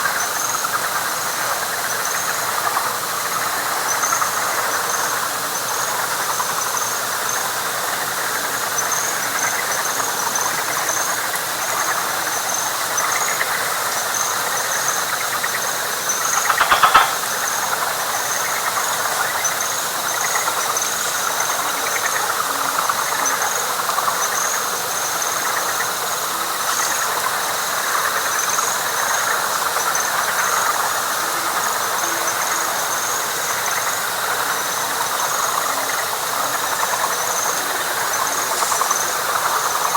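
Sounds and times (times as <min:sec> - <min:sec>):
loud pulsed frog call: 0:00.0 - 0:26.1, 0:26.8 - 0:39.9
frogs calling: 0:00.0 - 0:39.9
higher rhythmic chirping: 0:14.1 - 0:22.0.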